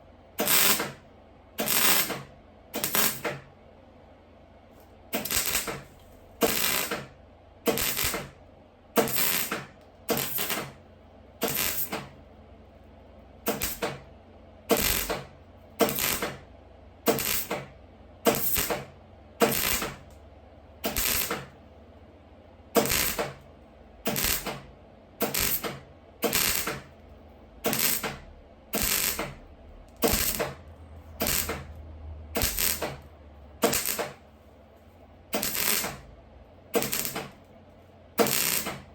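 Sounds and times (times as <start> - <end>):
low welder hum: 0.0 - 38.9
welding arc crackling: 0.4 - 1.0, 1.6 - 3.4, 5.1 - 8.4, 9.0 - 10.8, 11.4 - 12.2, 13.4 - 14.1, 14.7 - 17.7, 18.3 - 20.1, 20.8 - 21.6, 22.7 - 26.9, 27.6 - 34.2, 35.3 - 36.1, 36.7 - 37.4, 38.2 - 38.9.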